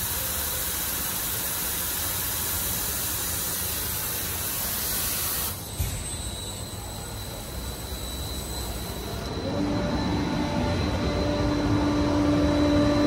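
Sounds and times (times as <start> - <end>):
low hum: 9.0 - 13.0.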